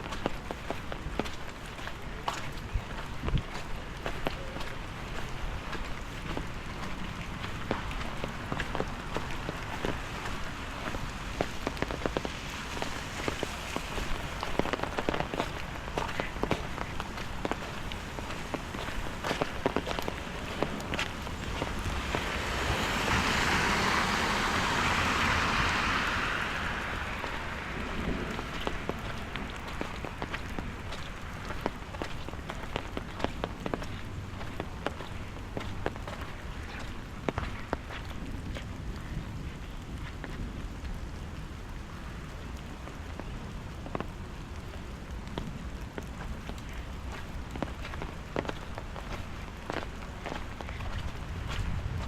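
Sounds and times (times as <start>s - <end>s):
rain falling: 0.0s - 52.0s
tyres hissing on wet road: 0.1s - 52.0s.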